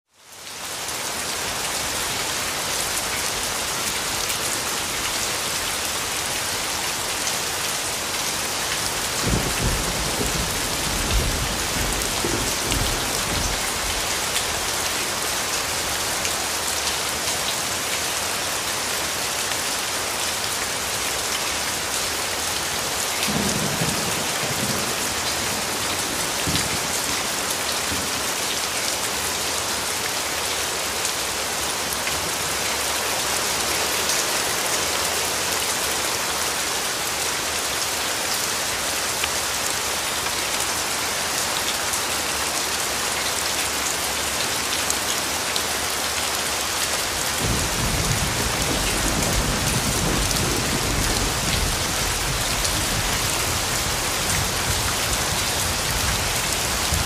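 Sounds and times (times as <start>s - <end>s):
heavy rain on a hard surface: 0.0s - 57.0s
thunder rumbling: 9.2s - 14.0s.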